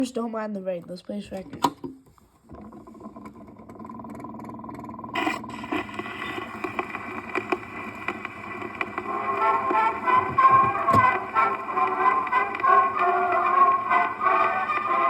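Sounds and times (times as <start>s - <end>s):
record surface hiss and crackle: 0.7s - 15.0s
instrumental music: 6.2s - 15.0s.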